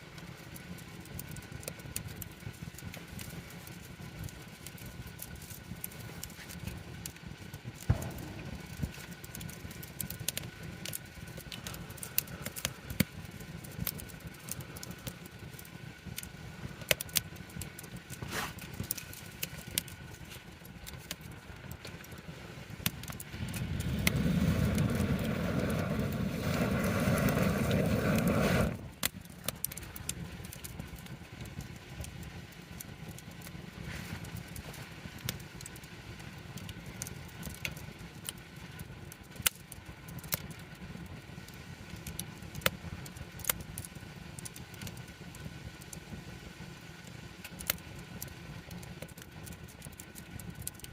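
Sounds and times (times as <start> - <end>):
campfire crackling and popping: 0.0 - 50.9
low steady hiss: 0.0 - 50.9
loud low rushing noise: 7.9 - 9.1.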